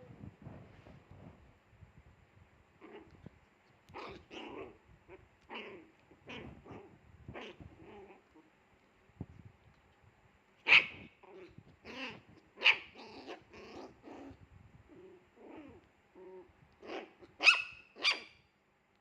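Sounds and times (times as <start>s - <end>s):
puppy growling: 2.8s - 8.5s, 10.7s - 17.4s
puppy barking: 10.6s - 11.5s, 12.1s - 13.5s, 16.9s - 18.4s.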